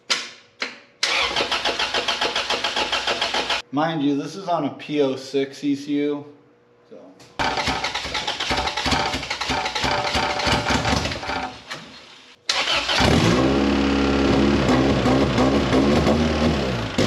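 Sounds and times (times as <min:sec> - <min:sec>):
starter motor cranking: 0:01.0 - 0:03.6, 0:07.4 - 0:11.9.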